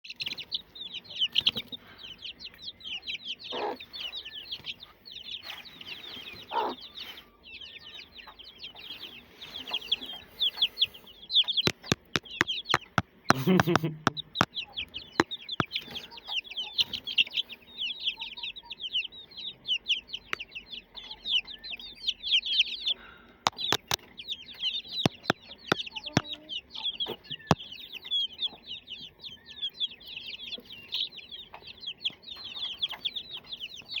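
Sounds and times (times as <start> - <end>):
chicks peeping: 0.0 - 34.0
sharp clicks: 11.7 - 14.5, 23.5 - 24.0.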